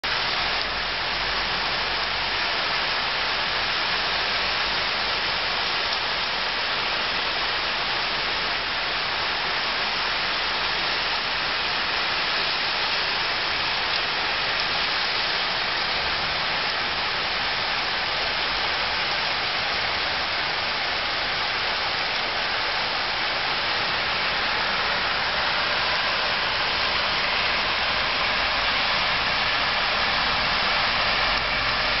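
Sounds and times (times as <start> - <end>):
heavy rain on road: 0.0 - 32.0
car tyres swishing through water: 10.0 - 32.0.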